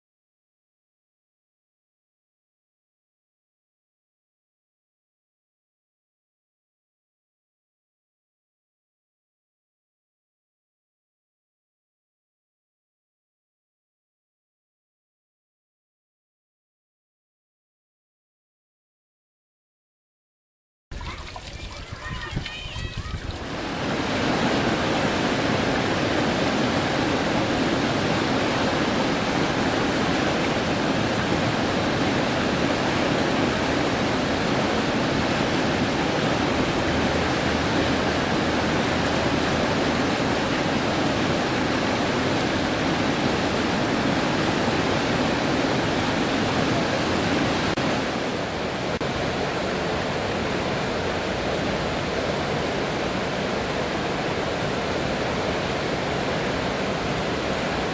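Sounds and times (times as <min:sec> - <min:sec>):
rush of flowing water: 0:20.9 - 0:57.9.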